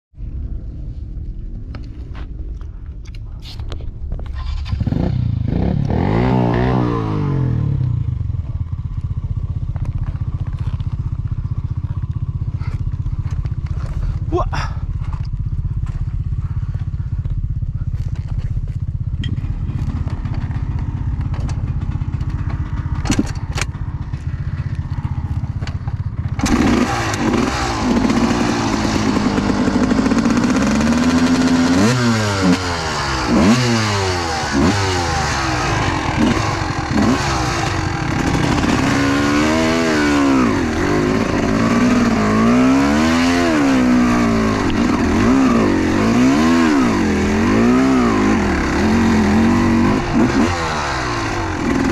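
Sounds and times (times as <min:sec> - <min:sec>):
motorcycle engine revving: 0:04.2 - 0:51.9.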